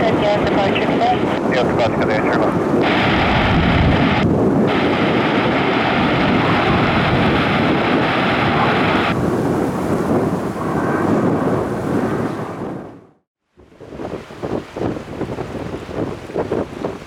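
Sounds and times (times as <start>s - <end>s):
jet airliner engines rumbling: 0.0s - 13.2s.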